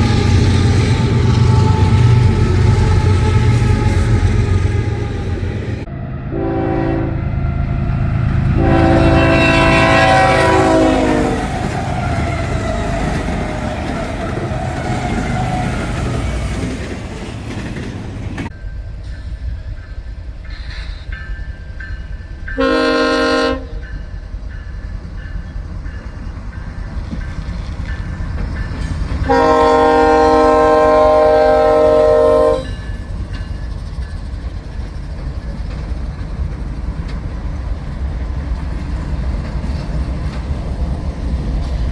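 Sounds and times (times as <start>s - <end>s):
train rumbling past: 0.0s - 41.9s
train horn chord: 5.9s - 11.6s, 22.6s - 23.8s, 29.3s - 32.8s.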